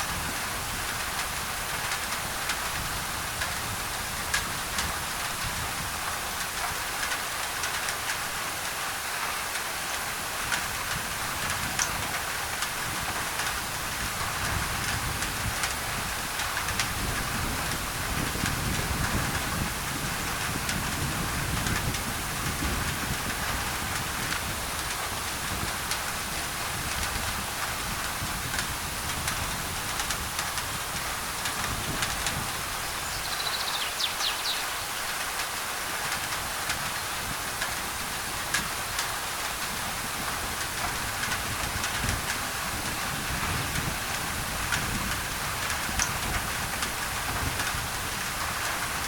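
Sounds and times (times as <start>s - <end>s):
rain on a tin roof: 0.0s - 49.0s
bird chirp: 33.0s - 35.2s.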